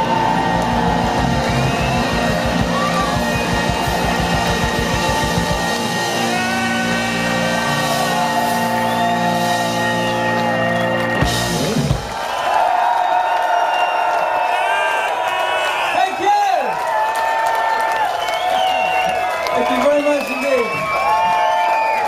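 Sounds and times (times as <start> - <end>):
electric guitar bending notes: 0.0 - 12.1
bass guitar: 0.0 - 12.2
drums pounding: 0.0 - 12.8.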